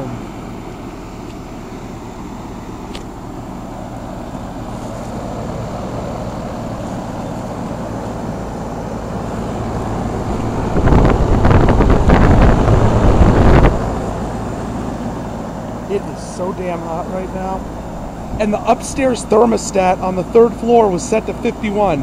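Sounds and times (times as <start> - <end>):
air-conditioner units humming: 0.0 - 22.0
wind buffeting microphone: 9.3 - 14.6.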